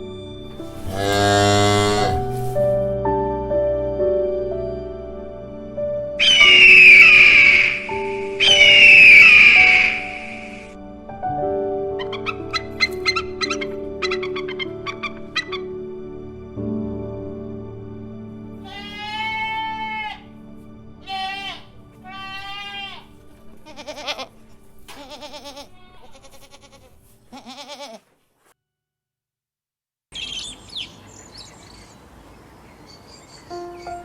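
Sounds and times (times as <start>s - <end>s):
soft background music: 0.0s - 27.8s, 33.0s - 34.0s
farm animal bleating: 0.8s - 2.6s, 18.6s - 20.4s, 21.0s - 28.2s.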